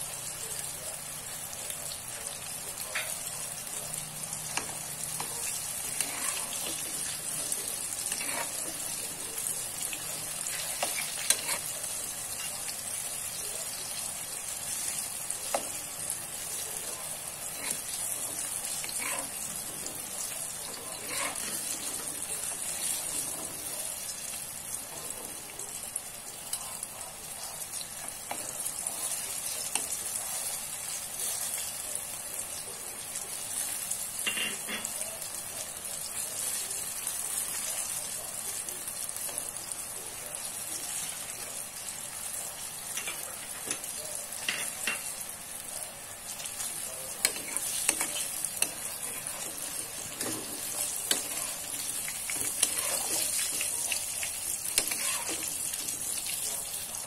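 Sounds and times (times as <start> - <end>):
eggplant sizzling in oil: 0.0 - 57.0
spatula scraping a wok: 5.8 - 7.0, 7.9 - 8.8, 10.4 - 11.8, 17.5 - 19.7, 20.9 - 22.0, 47.2 - 53.6, 54.7 - 55.6.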